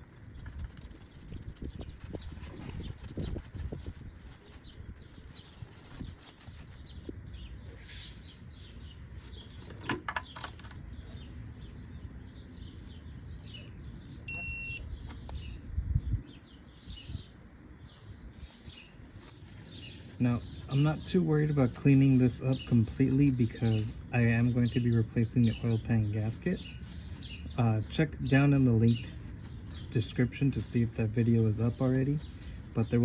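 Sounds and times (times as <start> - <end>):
small birds chirping: 0.0 - 33.0
electronic beep: 14.3 - 14.8.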